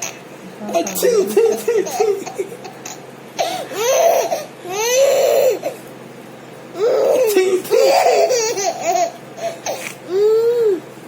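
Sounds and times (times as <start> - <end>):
baby laughing: 0.0 - 5.8, 6.8 - 10.7.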